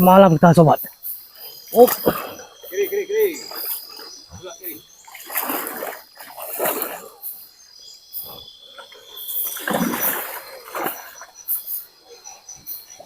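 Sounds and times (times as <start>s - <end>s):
insects chirring: 0.0s - 13.0s
water splashing: 1.7s - 7.3s, 8.2s - 11.7s.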